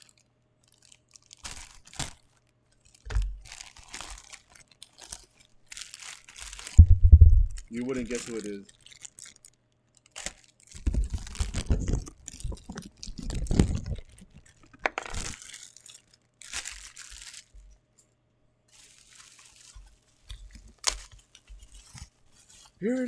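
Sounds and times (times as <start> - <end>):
plastic crinkling and tearing: 0.0 - 17.9, 18.7 - 23.0
heavy bumps and scrapes: 6.8 - 7.7.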